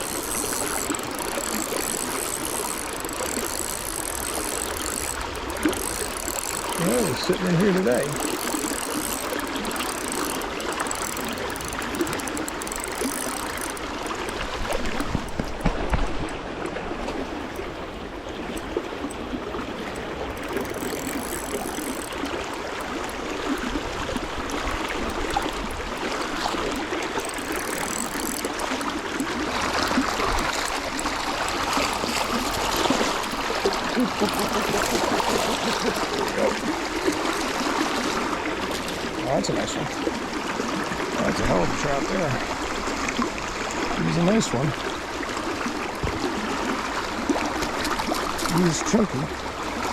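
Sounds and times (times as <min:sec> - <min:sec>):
fishing reel ratcheting clicks: 0:00.0 - 0:15.6, 0:19.9 - 0:37.6
stream water flowing: 0:00.0 - 0:49.9.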